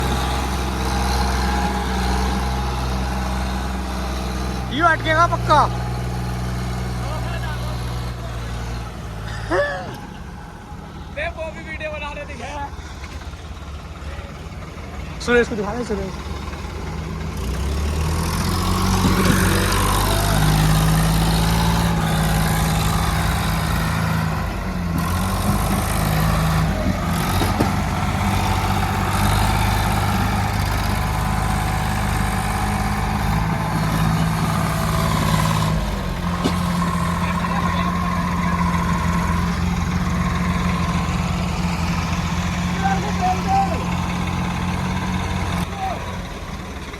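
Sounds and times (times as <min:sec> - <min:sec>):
diesel tractor engine running hard: 0:00.0 - 0:46.9.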